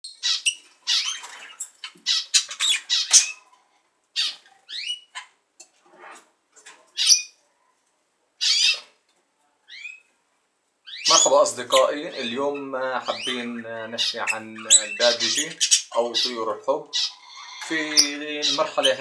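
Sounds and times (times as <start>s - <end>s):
budgies squawking and chirping: 0.1s - 5.4s, 6.0s - 7.4s, 8.4s - 9.0s, 9.7s - 10.1s, 10.9s - 19.0s.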